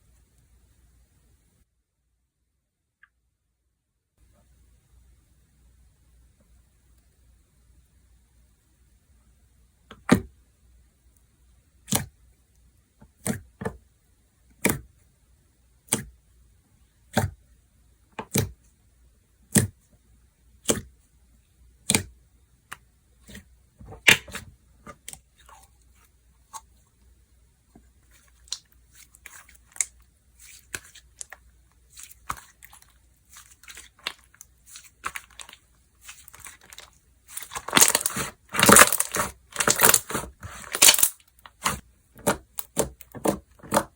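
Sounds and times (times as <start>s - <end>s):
slime popping and crackling: 28.2s - 43.9s.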